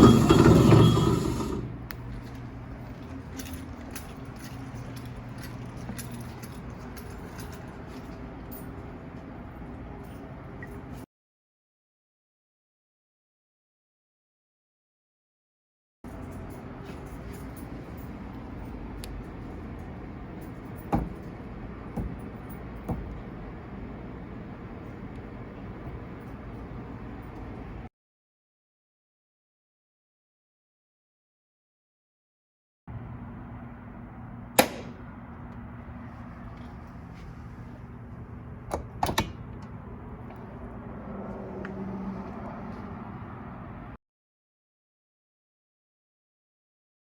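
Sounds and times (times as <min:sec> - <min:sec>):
washing machine humming: 0:00.0 - 0:11.0, 0:16.1 - 0:27.9, 0:32.9 - 0:44.0
light clicks and jingles: 0:02.0 - 0:11.0, 0:16.1 - 0:23.4.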